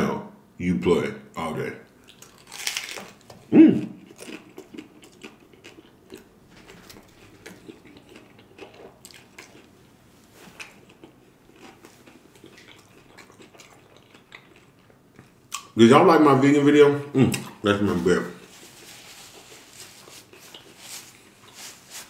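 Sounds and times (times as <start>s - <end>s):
chewing crunchy taco shell: 2.0s - 9.8s, 10.4s - 15.8s, 18.4s - 21.8s.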